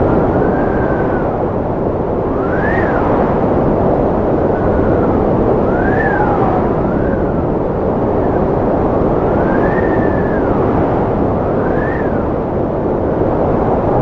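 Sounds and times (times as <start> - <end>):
strong wind blowing: 0.0 - 14.0
whistling wind howl: 0.0 - 14.0.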